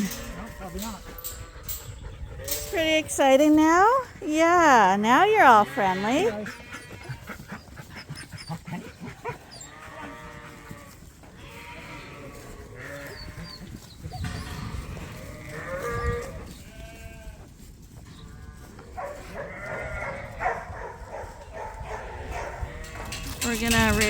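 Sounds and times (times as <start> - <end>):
sheep bleating: 0.0 - 1.8, 4.6 - 7.5, 9.2 - 13.7, 14.4 - 17.4, 18.4 - 20.6.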